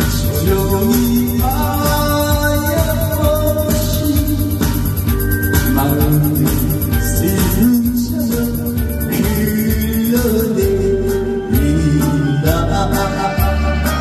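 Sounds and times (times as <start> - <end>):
drum beat: 0.0 - 10.8
person singing: 0.0 - 14.0
ticking hi-hat: 0.0 - 14.0.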